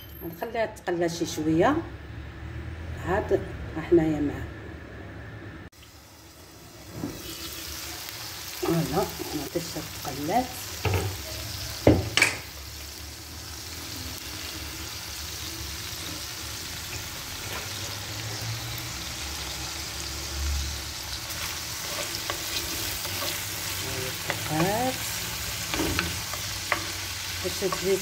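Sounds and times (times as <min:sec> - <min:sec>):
onions sizzling in oil: 0:05.7 - 0:28.0
wooden spoon stirring and tapping: 0:21.8 - 0:28.0.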